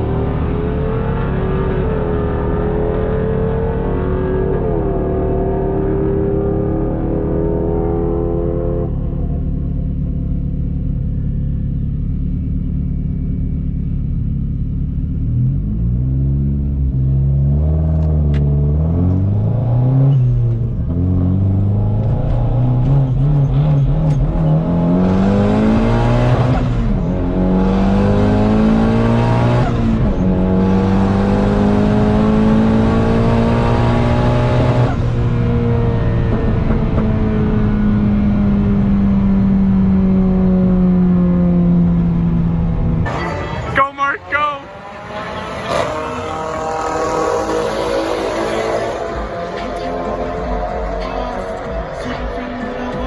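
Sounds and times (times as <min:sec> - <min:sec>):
car engine revving through gears: 0:00.0 - 0:09.4, 0:14.0 - 0:53.0
loud rush: 0:43.1 - 0:53.0.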